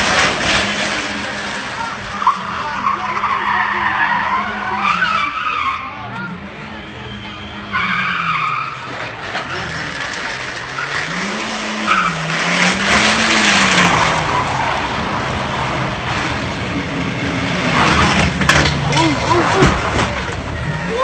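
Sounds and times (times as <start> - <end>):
car engine revving: 0.0 - 21.0
tyres skidding and squealing: 0.0 - 21.0.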